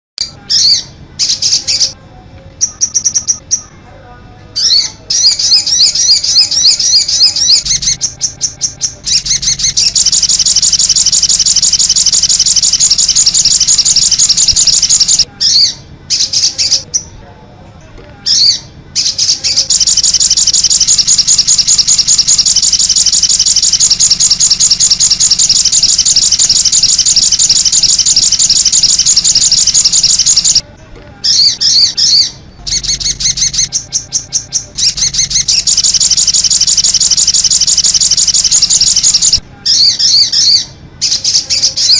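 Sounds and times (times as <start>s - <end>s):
bird chirps and trills: 0.2s - 2.0s, 2.6s - 3.8s, 4.6s - 17.2s, 18.3s - 30.6s, 31.2s - 41.9s.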